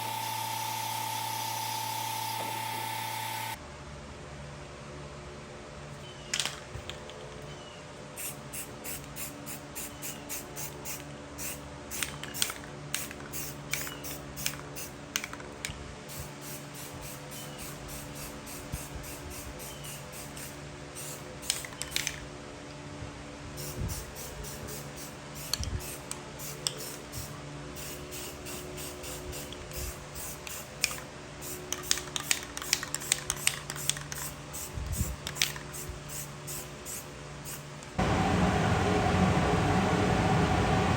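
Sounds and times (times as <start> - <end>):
short hissing strokes: 16.1 - 21.7, 23.6 - 32.0
steady low hum: 38.0 - 40.9.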